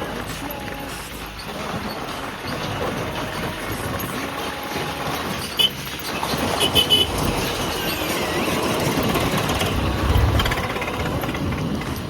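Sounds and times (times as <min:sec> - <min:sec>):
traffic rumble: 0:00.0 - 0:12.0
vehicle horn toots: 0:05.4 - 0:07.7.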